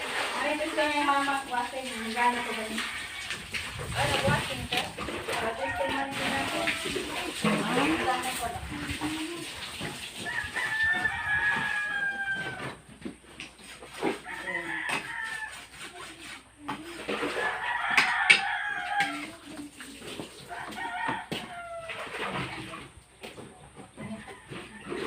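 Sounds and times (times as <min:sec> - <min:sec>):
rooster crowing: 0:02.8 - 0:03.5, 0:10.2 - 0:12.8, 0:14.2 - 0:15.7, 0:17.4 - 0:19.4, 0:20.5 - 0:22.1.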